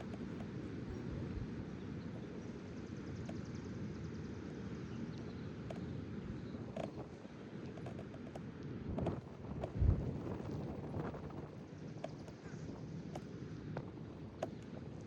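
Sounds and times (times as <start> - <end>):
faint ticks: 3.2 - 3.5, 5.1 - 5.9
wind buffeting microphone: 8.7 - 15.0.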